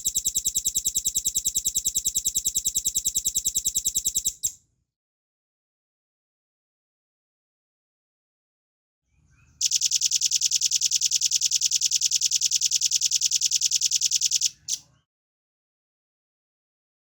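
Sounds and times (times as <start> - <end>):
bird high-pitched trill: 0.0 - 4.6.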